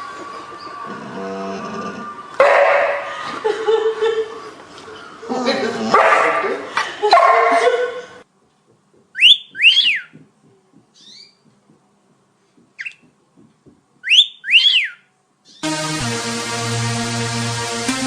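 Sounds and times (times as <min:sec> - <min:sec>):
short whistled notes: 0:14.0 - 0:15.0.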